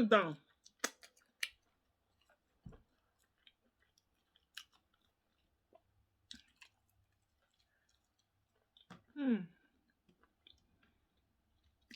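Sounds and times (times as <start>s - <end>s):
chewing food: 0.4s - 11.9s
mouth clicks and smacks: 0.6s - 1.6s.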